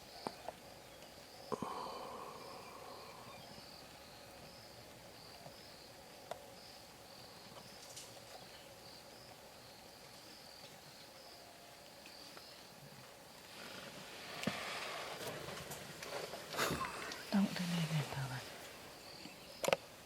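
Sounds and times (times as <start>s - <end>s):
insects chirping: 0.0s - 20.0s
faint sharp clicks: 18.6s - 19.8s.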